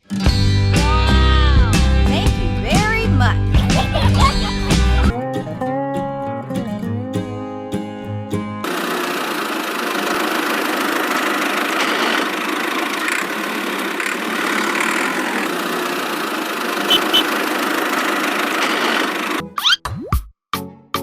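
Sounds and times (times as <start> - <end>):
small motor running: 8.7 - 19.4
short high blips: 16.8 - 17.4.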